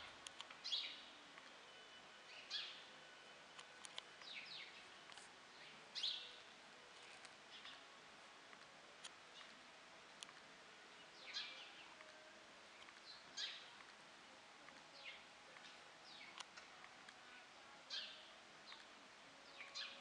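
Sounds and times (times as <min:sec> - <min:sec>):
small birds chirping: 0:00.0 - 0:07.9, 0:09.2 - 0:09.6, 0:10.2 - 0:14.0, 0:14.6 - 0:20.0
faint clicks: 0:00.2 - 0:00.6, 0:03.6 - 0:04.4, 0:10.2 - 0:10.5.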